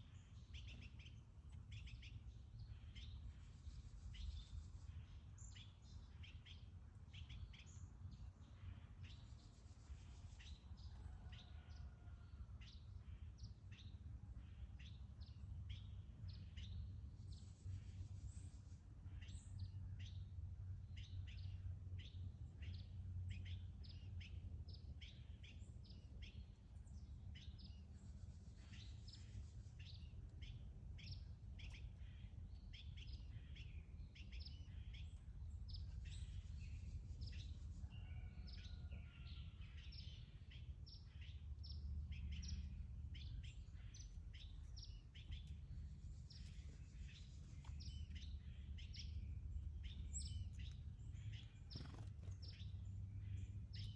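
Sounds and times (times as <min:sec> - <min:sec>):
small birds chirping: 0:00.0 - 0:11.5, 0:12.6 - 0:53.9
low background rumble: 0:12.2 - 0:53.9.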